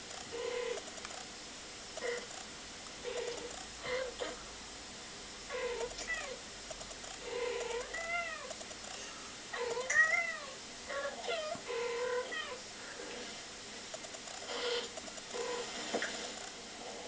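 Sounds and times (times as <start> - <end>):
cats meowing and chirping: 5.5 - 6.4, 7.2 - 8.6, 9.6 - 12.6.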